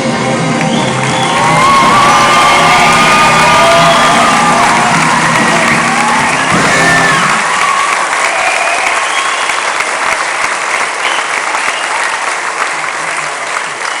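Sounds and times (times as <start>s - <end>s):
audience applauding: 0.4s - 14.0s
audience cheering: 0.5s - 14.0s.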